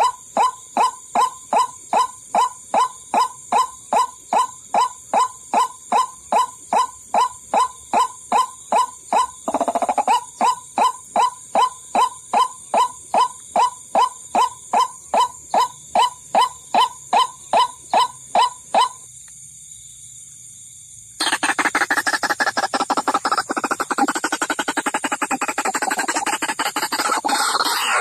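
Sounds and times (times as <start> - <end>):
steady high hiss: 19.0 - 28.0
fast rattling trill: 21.2 - 28.0.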